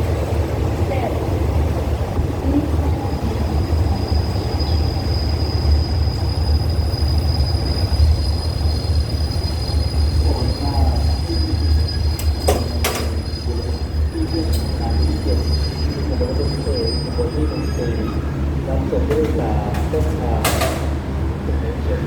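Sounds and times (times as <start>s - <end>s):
train rumbling: 0.0s - 22.0s
wheels squealing: 3.2s - 18.4s.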